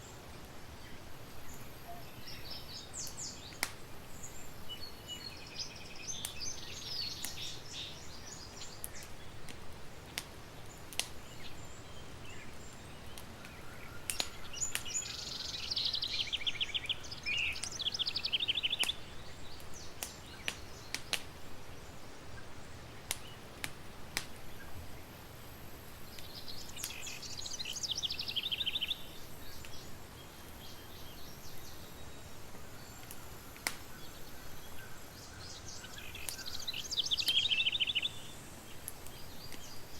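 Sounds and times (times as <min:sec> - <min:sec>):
campfire crackling: 0:00.0 - 0:39.9
songbird trilling: 0:13.6 - 0:19.0, 0:26.5 - 0:29.8, 0:33.9 - 0:38.3.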